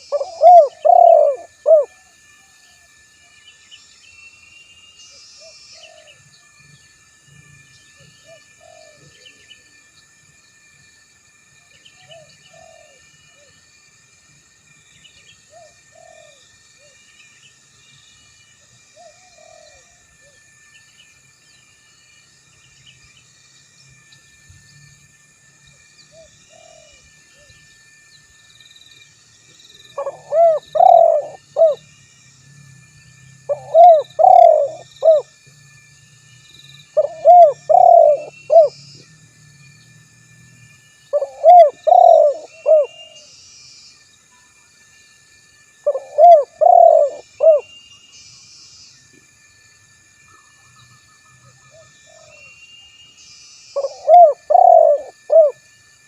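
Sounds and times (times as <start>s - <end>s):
dove cooing: 0.0s - 2.0s, 8.2s - 9.4s, 12.0s - 13.5s, 15.5s - 16.4s, 19.0s - 20.0s, 26.2s - 27.5s, 30.0s - 31.8s, 33.5s - 35.3s, 37.0s - 38.8s, 41.1s - 43.2s, 45.8s - 47.6s, 53.8s - 55.6s
high chirping of birds: 0.0s - 2.0s, 28.1s - 35.4s, 36.2s - 40.0s, 40.7s - 44.5s, 45.8s - 49.0s, 50.3s - 55.6s.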